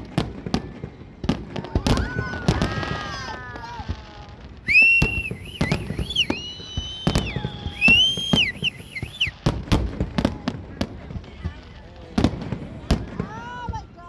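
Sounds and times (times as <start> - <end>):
fireworks banging and crackling: 0.0 - 13.9
high swooping whistle: 4.7 - 9.4
long falling whistle: 4.7 - 9.4.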